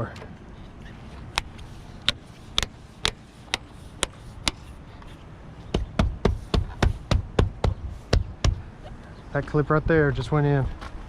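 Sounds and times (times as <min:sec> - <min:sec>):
heavy knocks: 0:05.7 - 0:08.6.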